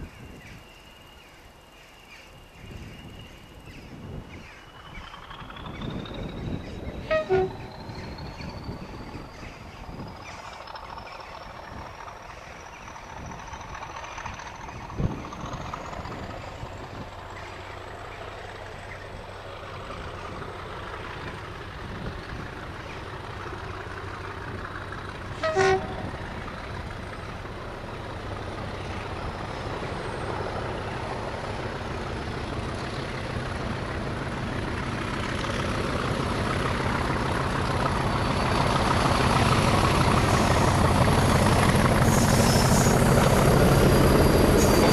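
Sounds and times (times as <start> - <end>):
diesel locomotive engine approaching: 0.0 - 44.9
locomotive horn blast: 7.0 - 7.8, 25.3 - 26.2.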